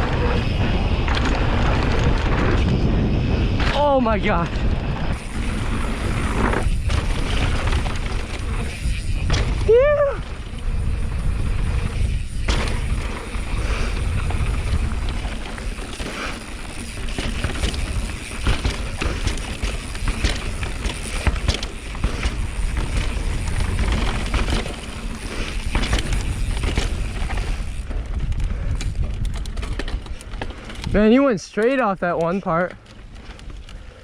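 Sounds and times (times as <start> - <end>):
wind rumbling on microphone: 0.0 - 31.4
bike rattling over bumps: 0.0 - 34.0
tyres crunching over dirt and rocks: 11.2 - 33.9.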